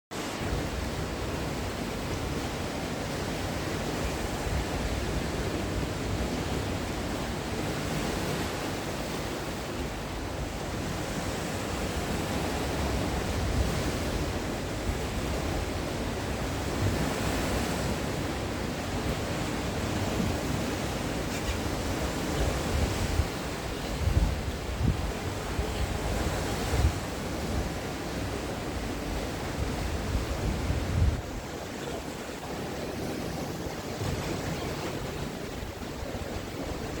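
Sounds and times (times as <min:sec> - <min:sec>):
sea waves washing on shore: 0:00.1 - 0:37.0
wind buffeting microphone: 0:10.4 - 0:37.0.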